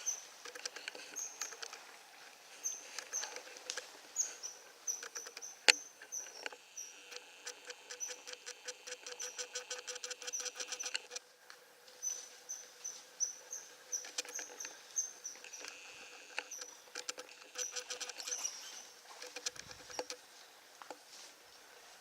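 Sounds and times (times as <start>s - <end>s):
rattling chatter of clicks: 0.4s - 1.8s, 4.9s - 11.2s, 14.0s - 14.8s, 15.4s - 18.4s, 19.2s - 20.2s
small animal chirping: 2.6s - 3.4s, 4.2s - 11.2s, 12.0s - 20.2s.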